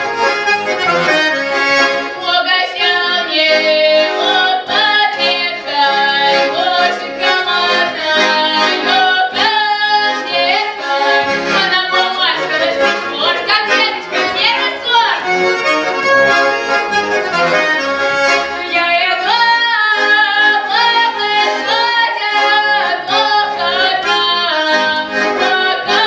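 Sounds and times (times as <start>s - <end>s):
accordion: 0.0s - 26.0s
woman singing folk ditties: 2.1s - 15.3s, 18.6s - 26.0s.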